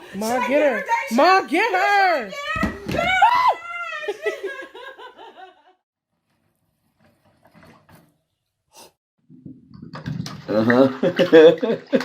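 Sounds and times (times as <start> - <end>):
person laughing: 10.7 - 12.0.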